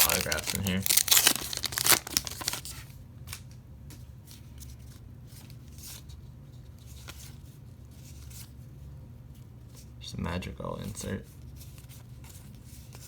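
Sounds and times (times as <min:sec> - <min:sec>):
foil pack crinkling and tearing: 0:00.0 - 0:03.4
low steady hum: 0:00.0 - 0:13.0.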